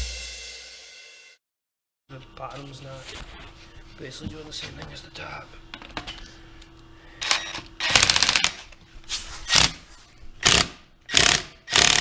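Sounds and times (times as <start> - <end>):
power tool rattling bursts: 7.8 - 8.6, 10.4 - 12.0.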